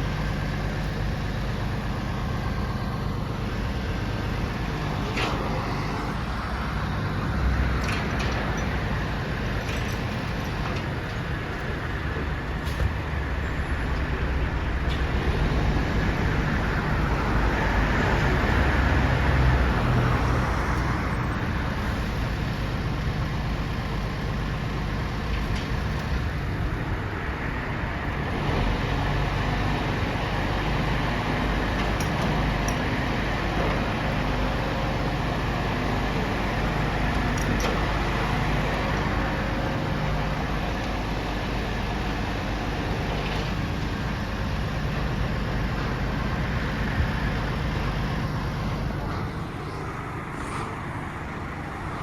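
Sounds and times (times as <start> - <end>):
truck engine running: 0.0 - 27.2.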